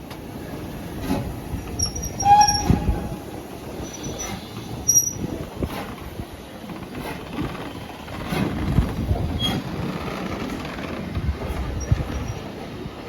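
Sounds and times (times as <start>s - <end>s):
railway carriages rolling: 0.0s - 13.0s
wheels squealing: 1.7s - 5.9s.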